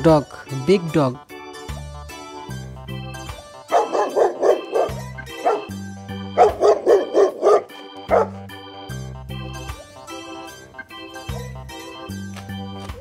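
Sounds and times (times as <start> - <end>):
background music with bass: 0.0 - 13.0
large dog barking: 3.7 - 8.5.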